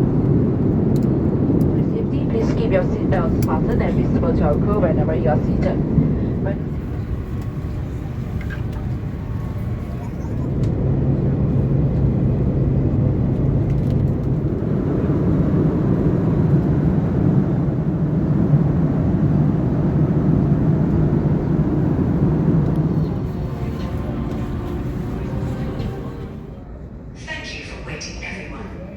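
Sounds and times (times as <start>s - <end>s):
aircraft cabin engine hum: 0.0s - 27.6s.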